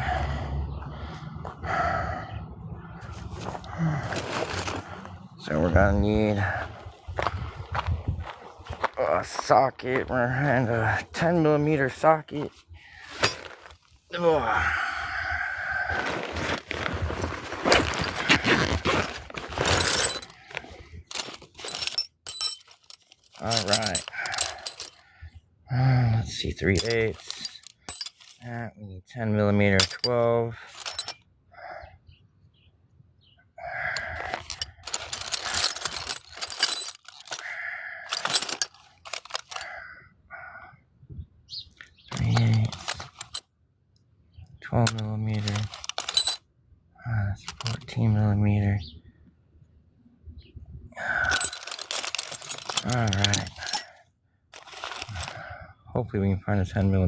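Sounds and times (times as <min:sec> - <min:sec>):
thumps and shuffling: 0:03.0 - 0:10.6, 0:12.3 - 0:14.0, 0:15.9 - 0:25.0, 0:26.6 - 0:28.4, 0:29.8 - 0:31.2, 0:34.0 - 0:37.5, 0:38.1 - 0:39.7, 0:42.1 - 0:43.4, 0:44.8 - 0:46.4, 0:51.2 - 0:55.4
metal sockets clinking and rattling: 0:17.7 - 0:25.0, 0:26.6 - 0:28.4, 0:29.8 - 0:31.2, 0:33.9 - 0:39.8, 0:42.0 - 0:43.4, 0:44.8 - 0:46.4, 0:47.4 - 0:47.9, 0:51.1 - 0:55.5
light metal clinks: 0:21.1 - 0:25.0, 0:51.2 - 0:55.3.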